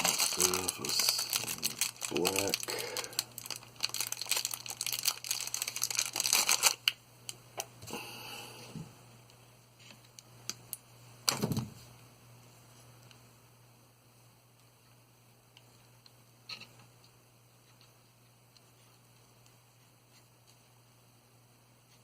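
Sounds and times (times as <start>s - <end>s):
plastic crinkling and rustling: 0.0s - 7.0s.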